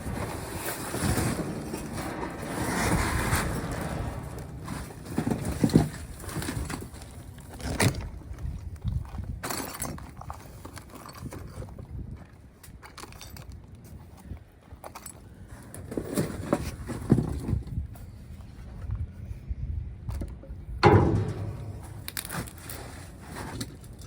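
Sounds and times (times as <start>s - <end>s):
items rustling and clattering: 0.0s - 11.9s, 14.8s - 17.8s, 20.8s - 24.0s
sharp knocks: 20.8s - 22.5s.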